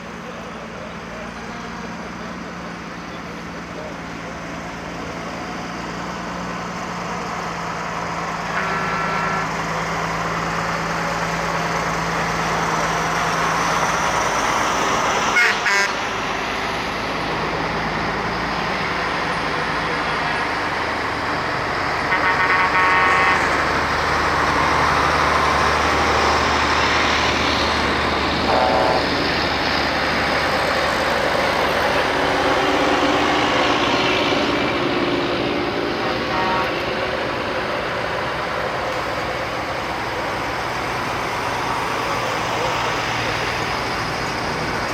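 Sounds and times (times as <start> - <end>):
heavy trucks driving past: 0.0 - 44.9
truck horn: 8.3 - 10.2, 15.3 - 16.1, 21.9 - 23.8, 28.3 - 29.8, 35.9 - 37.0.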